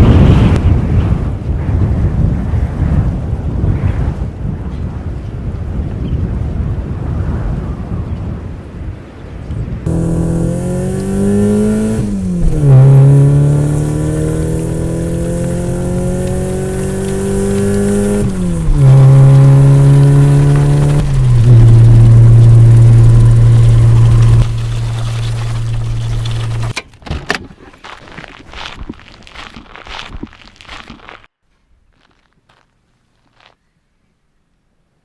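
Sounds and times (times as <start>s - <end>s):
wind noise: 0.0s - 26.8s
car engine accelerating: 9.9s - 26.8s.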